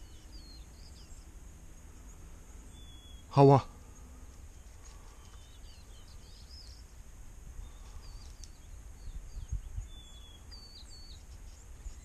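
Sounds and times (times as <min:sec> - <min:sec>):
small birds chirping: 0:00.0 - 0:12.0
wind rumble: 0:03.8 - 0:12.0.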